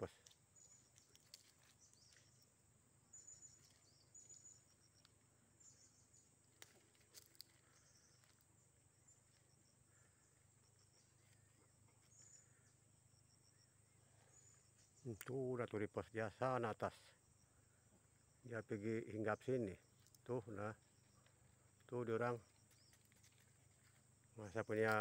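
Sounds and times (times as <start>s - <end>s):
high bird chirping: 0.6s - 2.5s, 3.1s - 6.8s.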